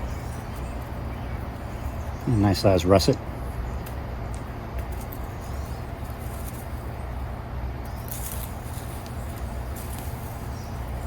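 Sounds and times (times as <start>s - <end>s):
steady low rumble: 0.0s - 11.0s
scratchy rustling in dirt: 4.8s - 11.0s.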